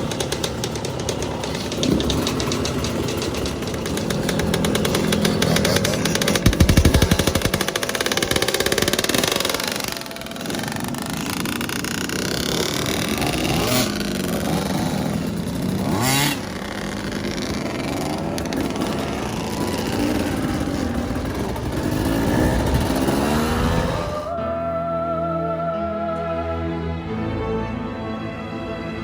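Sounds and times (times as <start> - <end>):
dirt bike engine revving: 0.0 - 24.5
music: 24.0 - 29.0.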